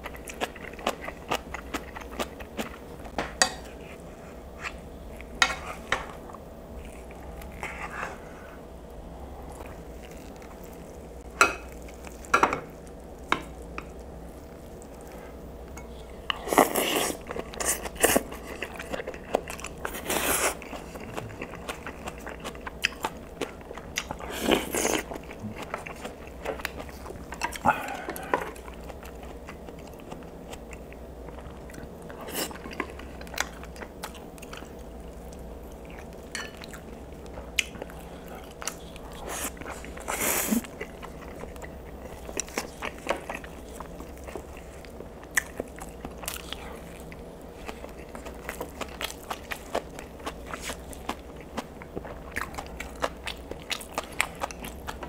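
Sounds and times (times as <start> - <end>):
chewing and biting food: 0.0 - 3.1, 16.2 - 55.0.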